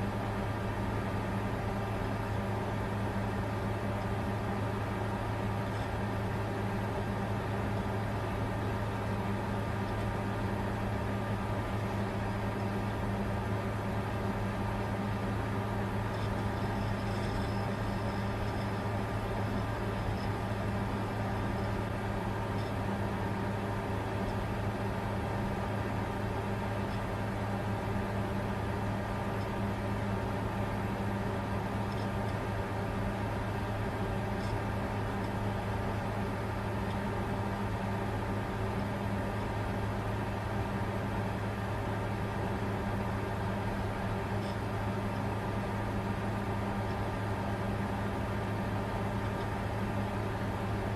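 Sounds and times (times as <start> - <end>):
cooling fans whirring: 0.0 - 50.9
low hum: 3.9 - 25.9.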